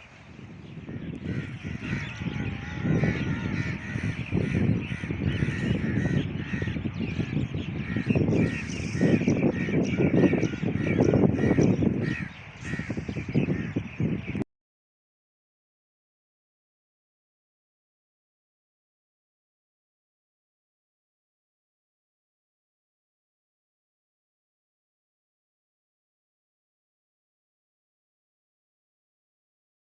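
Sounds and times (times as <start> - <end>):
crows cawing: 0.8 - 14.0.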